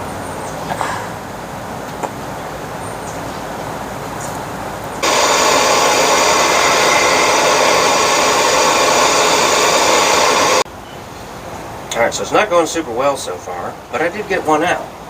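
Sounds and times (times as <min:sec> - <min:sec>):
loud steady hiss: 0:05.0 - 0:10.7.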